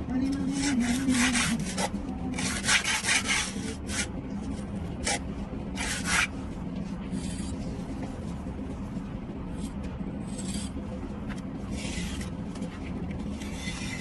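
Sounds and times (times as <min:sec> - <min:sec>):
steady low hum: 0:00.0 - 0:14.0
hand tool scraping mortar: 0:00.4 - 0:04.1.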